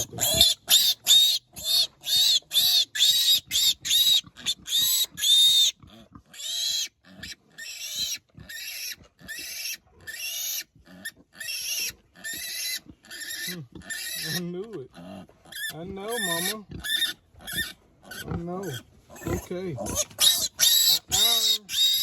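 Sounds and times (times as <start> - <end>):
piglet squealing: 0.0 - 22.0.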